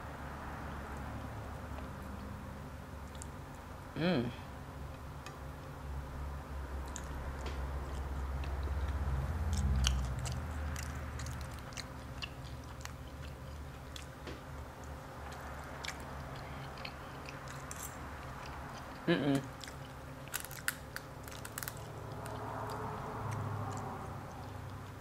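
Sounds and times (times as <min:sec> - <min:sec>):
close chewing with wet clicks: 0:03.0 - 0:03.7, 0:06.8 - 0:25.0.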